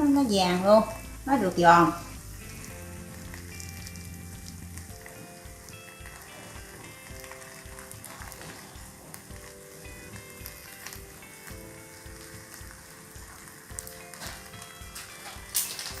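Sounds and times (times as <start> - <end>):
egg sizzling in a pan: 0.0 - 16.0
light background music: 0.0 - 16.0.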